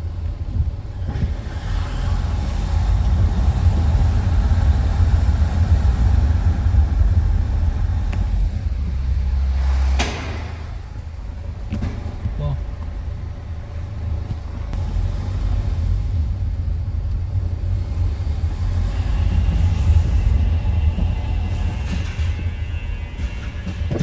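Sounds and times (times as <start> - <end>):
loud low rumble: 0.0 - 24.0.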